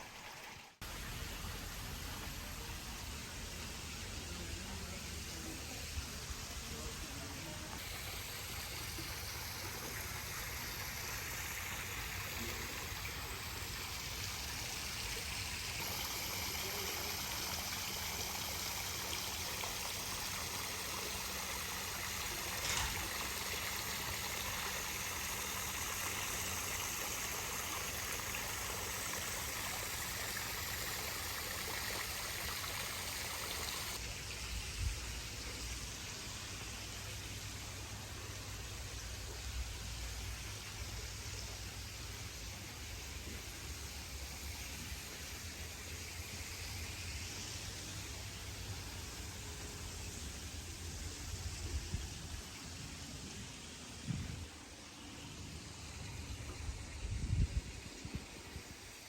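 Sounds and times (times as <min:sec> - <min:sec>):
water rushing: 0:00.0 - 0:34.6.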